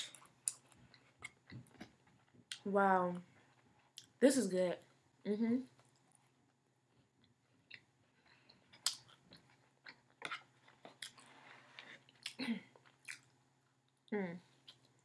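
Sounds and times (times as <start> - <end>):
person chewing: 0.0 - 2.7, 7.0 - 15.0.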